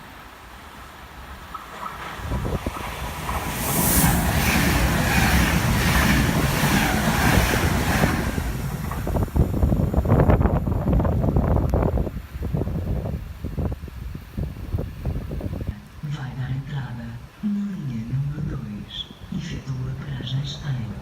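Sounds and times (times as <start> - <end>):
train passing at speed: 0.0 - 13.5
wind buffeting microphone: 1.2 - 15.8.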